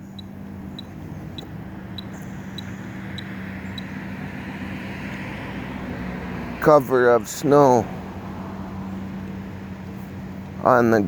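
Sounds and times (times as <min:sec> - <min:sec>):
vehicle motor hum and rolling: 0:00.0 - 0:11.0.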